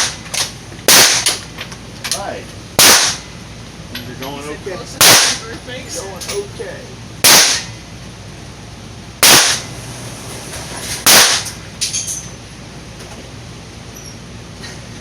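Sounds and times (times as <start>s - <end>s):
pistol shots with echo: 0.9s - 1.3s, 2.8s - 3.2s, 5.0s - 5.4s, 7.2s - 7.7s, 9.2s - 9.7s, 11.1s - 11.5s.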